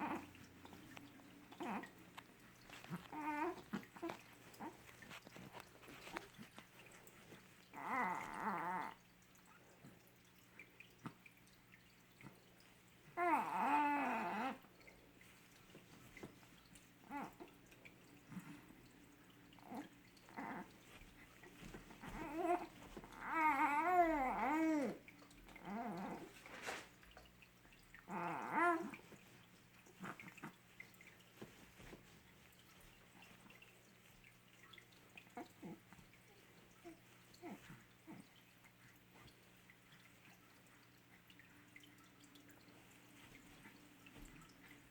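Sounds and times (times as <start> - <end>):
baby cooing: 3.0 - 4.8, 7.7 - 9.0, 13.2 - 14.6, 22.0 - 25.0, 28.1 - 29.0.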